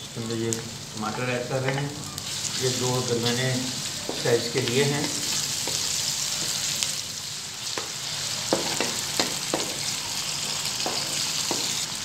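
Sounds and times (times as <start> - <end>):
tomatoes and onions sizzling: 0.0 - 12.0
wooden spoon knocking on pan: 8.5 - 9.8, 10.8 - 11.8.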